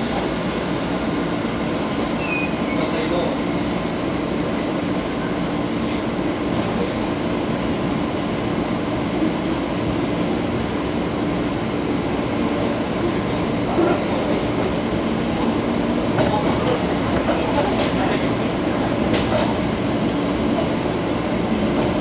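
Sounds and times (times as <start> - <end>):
rail running noise: 0.0 - 22.0
train interior hum: 0.0 - 22.0.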